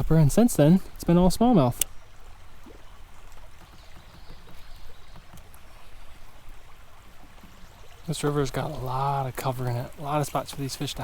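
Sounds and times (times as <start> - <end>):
river water splashing: 0.0 - 11.0.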